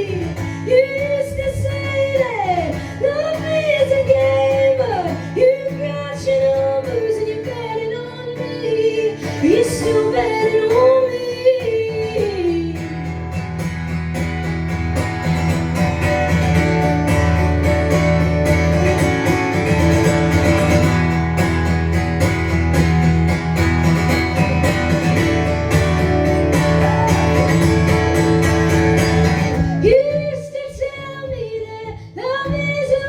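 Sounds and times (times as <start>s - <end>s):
strummed guitars: 0.0s - 33.0s
bass and drums: 13.0s - 31.7s.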